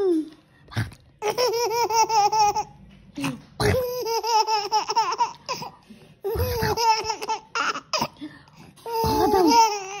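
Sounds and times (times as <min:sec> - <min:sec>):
baby laughing: 0:01.2 - 0:02.8, 0:03.6 - 0:08.2, 0:08.8 - 0:10.0.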